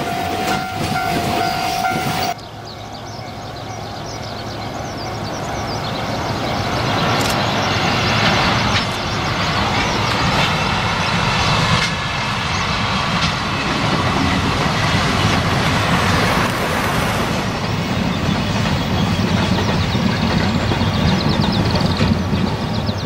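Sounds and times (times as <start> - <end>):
freight train rumbling past: 0.0 - 23.0
sharp clicks: 7.2 - 7.5.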